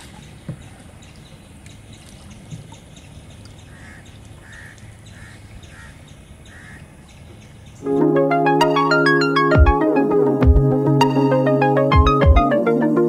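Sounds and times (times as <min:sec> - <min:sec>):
birds harsh calls: 0:00.0 - 0:07.9.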